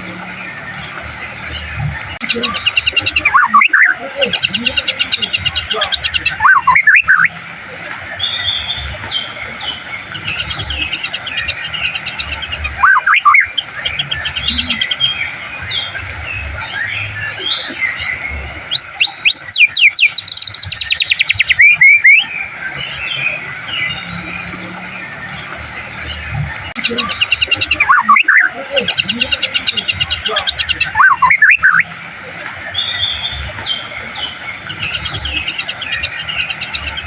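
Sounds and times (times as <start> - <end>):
fast repeated sweeping bird notes: 0.0 - 37.0
bird whistles and chirps: 1.5 - 7.4, 10.2 - 15.2, 16.6 - 24.6, 26.1 - 31.9, 32.7 - 37.0.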